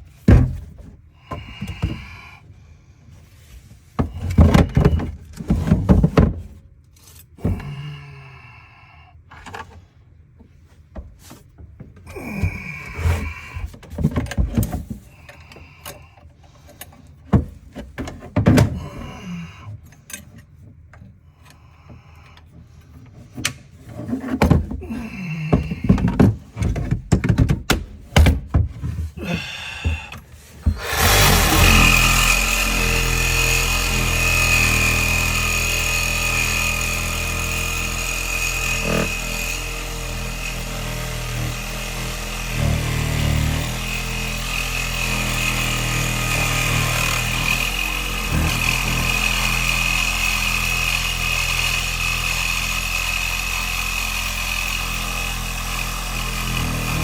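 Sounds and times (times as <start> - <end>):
knocks and thuds: 0.2 - 2.2, 4.0 - 6.6, 25.5 - 34.4
power tool running: 30.6 - 57.0.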